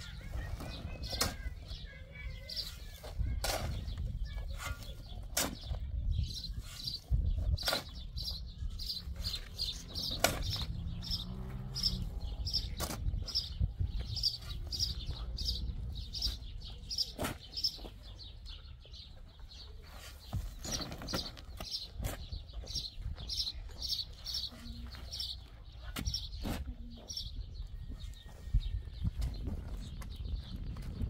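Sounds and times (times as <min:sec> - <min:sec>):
bird chirping: 0:00.0 - 0:31.0.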